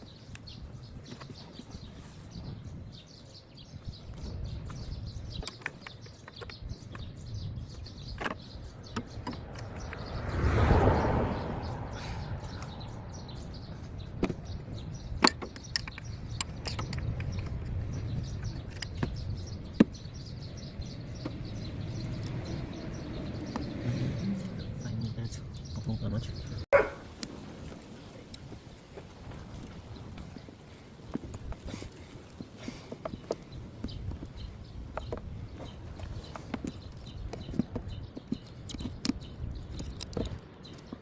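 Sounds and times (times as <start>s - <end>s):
tools and engine parts clicking: 4.2s - 10.1s, 13.3s - 22.5s, 31.2s - 41.0s.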